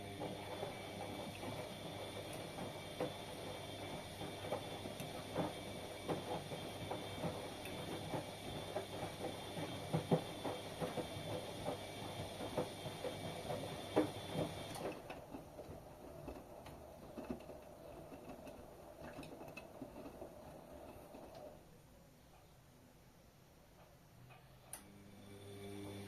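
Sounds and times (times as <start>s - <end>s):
washing machine whine and hum: 0.0s - 22.1s, 23.8s - 26.0s
washing machine drum clunks: 0.1s - 15.6s.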